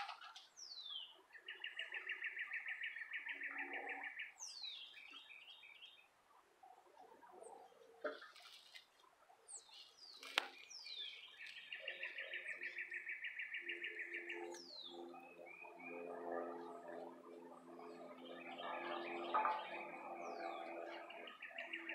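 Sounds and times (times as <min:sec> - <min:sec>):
birds chirping and calling: 0:00.0 - 0:06.1, 0:09.5 - 0:21.9
bird trill: 0:00.6 - 0:06.1, 0:09.5 - 0:21.9
low held bird calls: 0:09.5 - 0:21.9.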